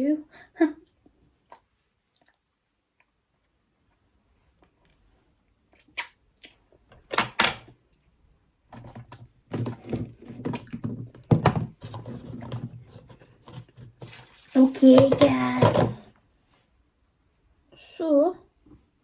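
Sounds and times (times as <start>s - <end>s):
objects knocking on hard surface: 8.7s - 14.2s, 14.8s - 16.1s
objects clattering: 8.8s - 16.1s.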